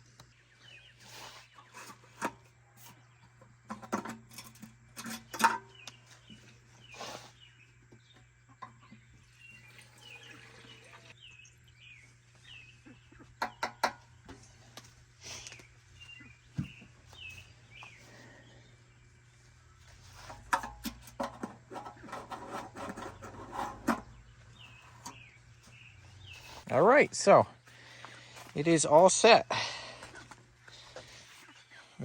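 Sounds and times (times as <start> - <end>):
birds chirping faintly: 0.0 - 32.0
clicks and knocks of handling tools: 3.7 - 6.0, 20.3 - 24.0.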